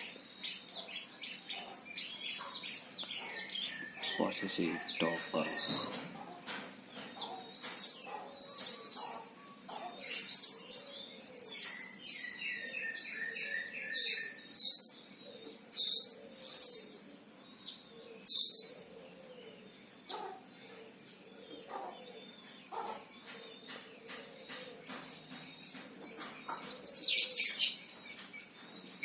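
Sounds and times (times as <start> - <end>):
bird singing rapid chirps: 23.7 - 29.0.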